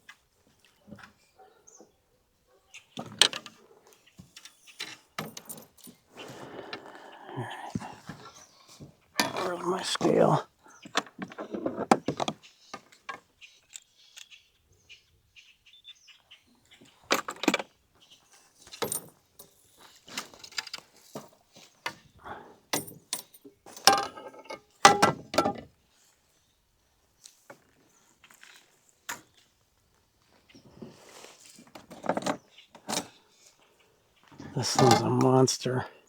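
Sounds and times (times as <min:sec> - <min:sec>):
gear clinking and rattling: 0:04.8 - 0:06.0, 0:18.7 - 0:19.8, 0:22.8 - 0:25.5.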